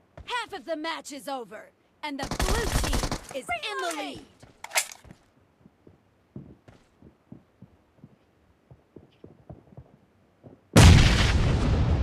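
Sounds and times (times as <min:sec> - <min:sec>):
muffled low video game thuds: 0:05.1 - 0:11.1.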